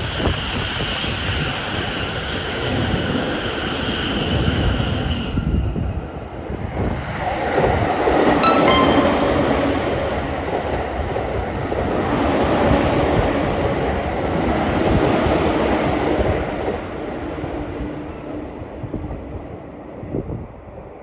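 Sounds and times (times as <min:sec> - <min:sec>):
brief high tone: 0:08.4 - 0:10.1
electric train passing: 0:08.4 - 0:10.5.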